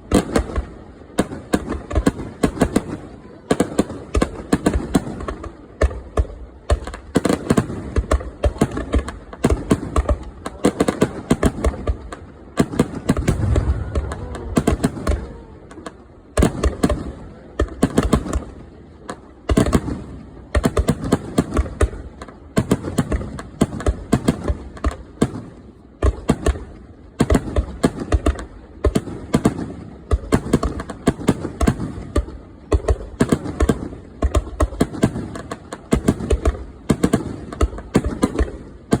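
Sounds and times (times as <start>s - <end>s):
fireworks bangs and crackling: 0.0s - 39.0s
low firework booms: 4.1s - 18.6s.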